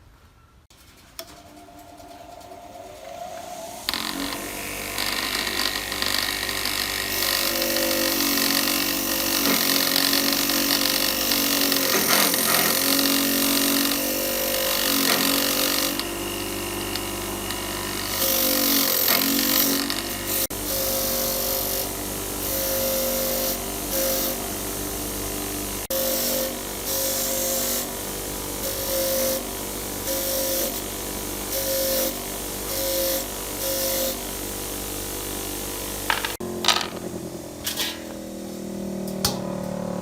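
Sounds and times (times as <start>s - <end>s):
electric power tool motor running: 2.4s - 40.0s.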